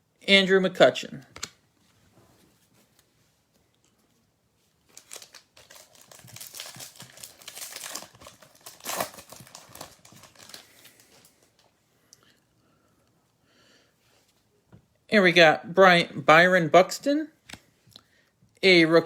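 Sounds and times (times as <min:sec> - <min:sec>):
plastic wrapper tearing and crinkling: 0:04.9 - 0:11.7.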